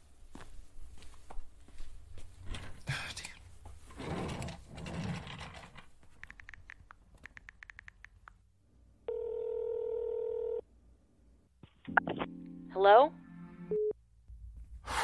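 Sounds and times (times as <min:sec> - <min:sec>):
phone ringing tone: 0:09.1 - 0:10.6.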